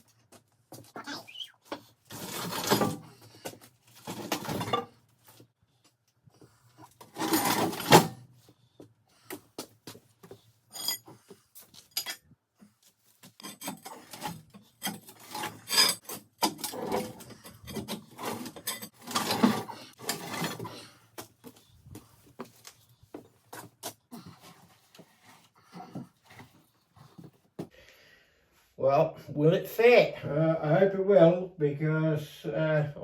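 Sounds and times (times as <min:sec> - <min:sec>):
wood and metal scraping: 0:01.6 - 0:05.4, 0:06.8 - 0:08.3, 0:10.2 - 0:27.4.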